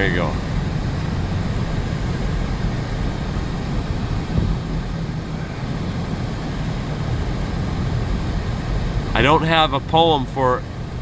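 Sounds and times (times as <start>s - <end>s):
low engine hum: 0.0s - 11.0s
rushing road noise in car: 0.0s - 11.0s.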